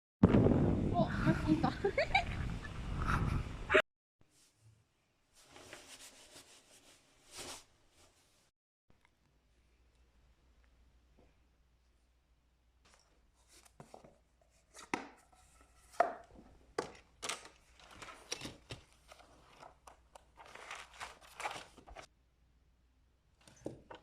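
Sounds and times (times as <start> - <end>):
objects being handled: 12.9 - 22.1.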